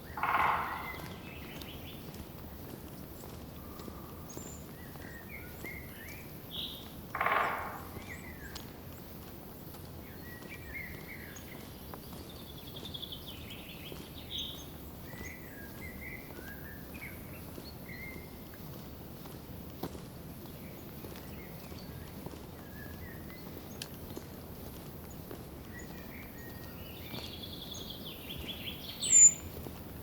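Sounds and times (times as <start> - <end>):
songbirds chirping: 0.0 - 30.0
falling bird trill: 0.2 - 1.5.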